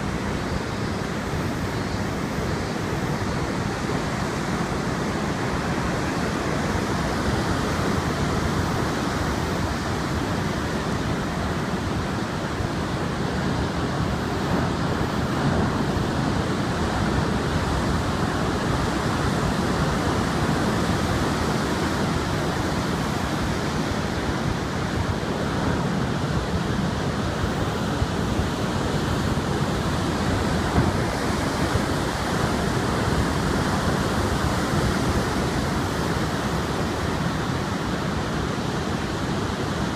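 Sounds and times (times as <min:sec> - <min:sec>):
strong wind: 0:00.0 - 0:39.9
surf breaking on a beach: 0:00.0 - 0:39.9.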